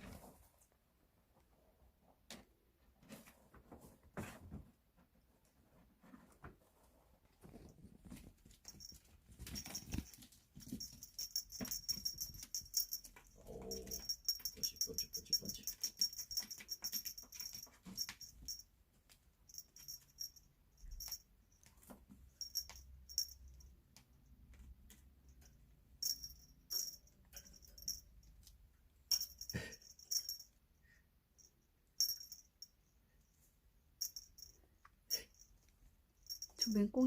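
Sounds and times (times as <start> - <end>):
small bell jingling: 7.6 - 18.7, 19.4 - 23.8, 25.3 - 33.1, 34.0 - 37.0.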